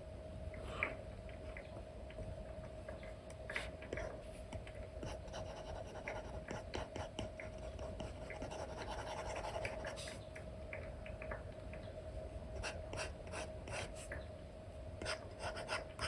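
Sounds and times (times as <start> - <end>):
faint steady hum: 0.0 - 16.0
stylus scratching and tapping screen: 5.0 - 10.2, 15.0 - 16.0.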